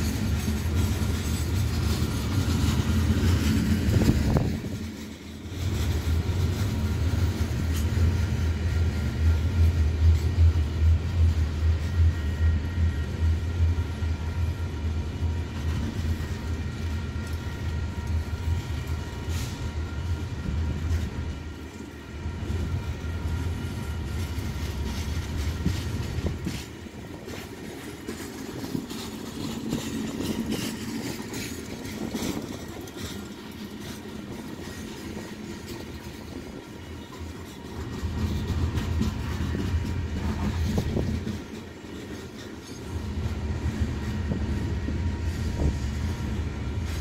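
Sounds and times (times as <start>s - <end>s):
wheels clicking over rail joints: 0.0s - 10.4s, 23.2s - 44.6s
freight train rumbling past: 0.0s - 47.0s
train cars rattling: 0.0s - 47.0s.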